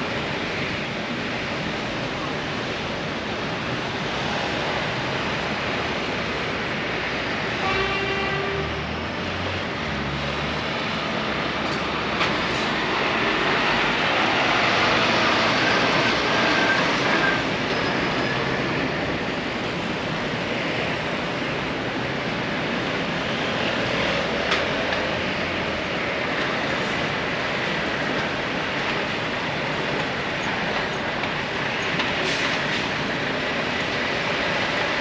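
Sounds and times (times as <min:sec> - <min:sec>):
passing traffic rumble: 0:00.0 - 0:35.0
faint high squeal: 0:15.5 - 0:19.6.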